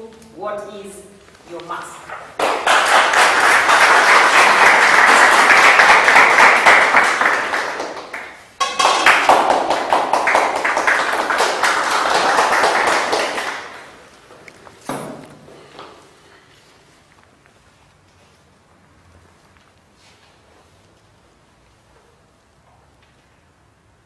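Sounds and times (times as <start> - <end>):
audience applauding: 2.3 - 14.2.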